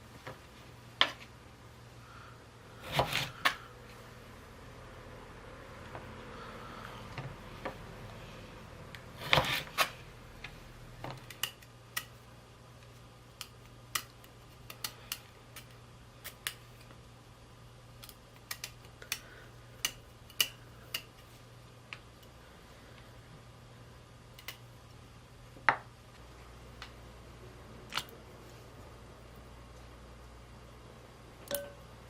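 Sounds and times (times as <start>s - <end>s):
knife cracking chestnut shells: 13.4s - 16.6s, 18.0s - 21.3s.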